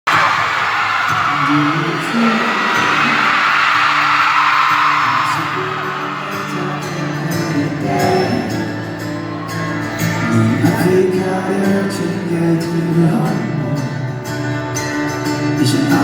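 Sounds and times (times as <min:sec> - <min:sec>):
concert crowd screaming: 0:00.1 - 0:12.4.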